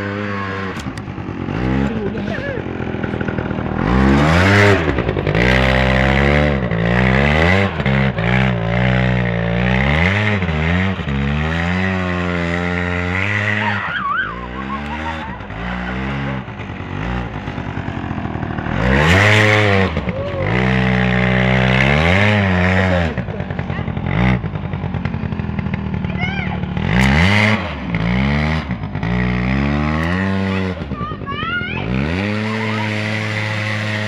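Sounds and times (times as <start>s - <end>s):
quad bike engine revving: 0.0s - 34.0s
wavering high sound: 13.6s - 15.4s.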